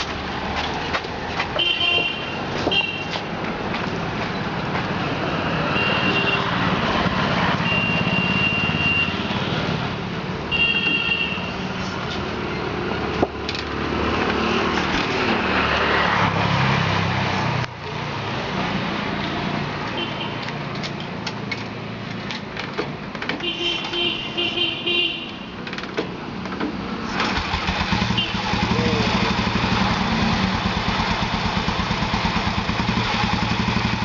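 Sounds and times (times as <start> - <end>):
vehicle engines running: 0.0 - 10.5, 26.4 - 34.0
vehicle horns tooting: 1.6 - 3.1, 10.5 - 11.7, 23.4 - 25.4, 28.0 - 28.7.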